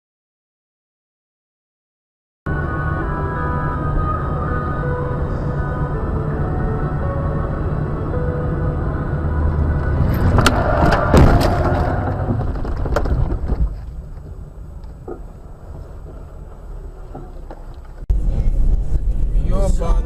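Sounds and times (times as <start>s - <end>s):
vehicle engine rumbling: 2.5s - 20.0s
sharp bangs and crunches: 10.0s - 14.2s.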